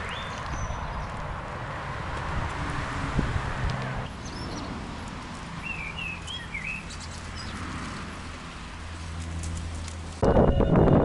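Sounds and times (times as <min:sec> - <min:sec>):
songbird chirping: 0:00.0 - 0:01.3, 0:04.1 - 0:08.6
wind rumble: 0:00.0 - 0:11.0.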